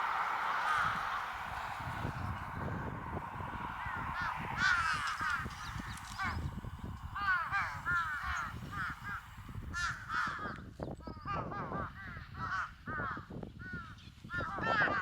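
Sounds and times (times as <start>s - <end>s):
harsh animal calls: 0.0s - 6.5s
low rumble: 0.0s - 10.2s.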